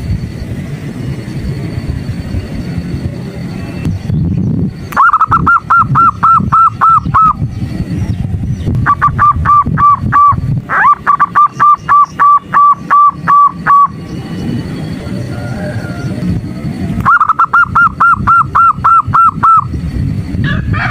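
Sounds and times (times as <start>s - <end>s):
low rumble: 0.0s - 20.9s
dove cooing: 5.0s - 7.5s, 8.8s - 14.0s, 15.0s - 19.8s.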